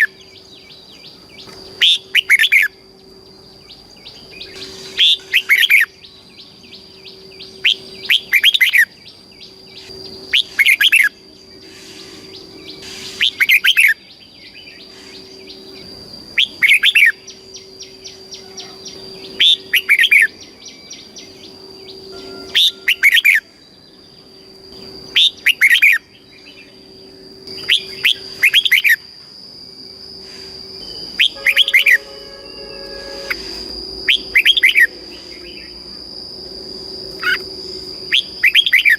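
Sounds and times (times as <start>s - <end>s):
bulbul singing: 0.0s - 38.9s
faint high-pitched tone: 16.5s - 25.0s, 30.8s - 38.9s.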